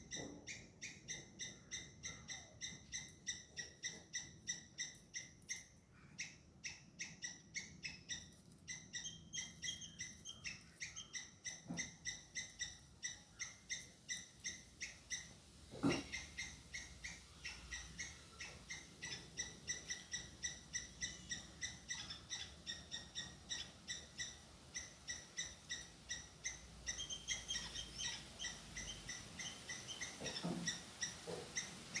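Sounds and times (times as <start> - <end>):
squirrel alarm chirps: 0.0 - 32.0.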